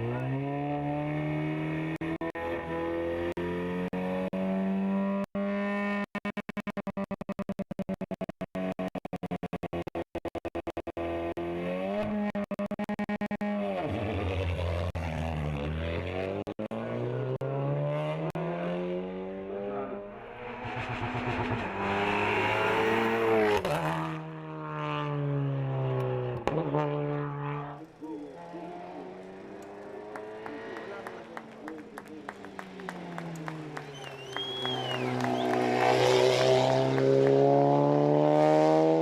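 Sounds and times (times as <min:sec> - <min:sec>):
race car engine shifting gears: 0:20.3 - 0:24.2, 0:26.0 - 0:39.0.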